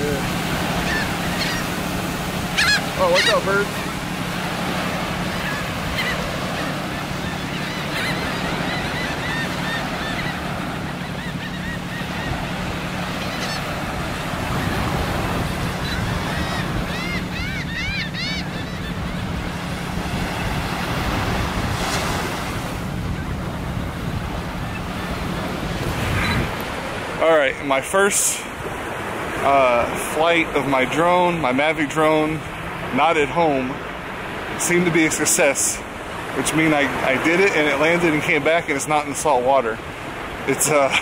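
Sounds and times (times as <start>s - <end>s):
bird calls: 0.0s - 27.2s
surf washing on shore: 0.0s - 41.0s
wind on microphone: 19.0s - 27.2s.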